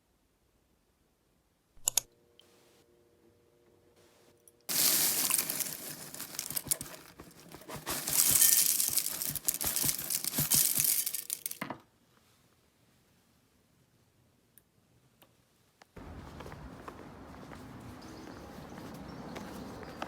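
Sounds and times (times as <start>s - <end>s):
wrapping crinkling and rustling: 4.7s - 11.6s.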